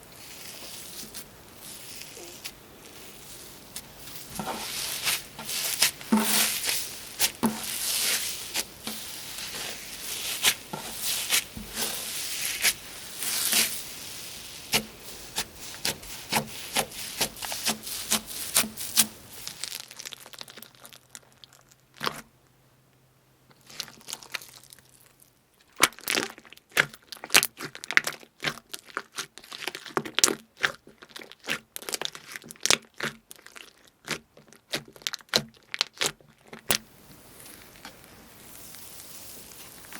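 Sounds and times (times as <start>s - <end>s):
slime squishing and popping: 4.5s - 22.2s, 25.7s - 36.8s.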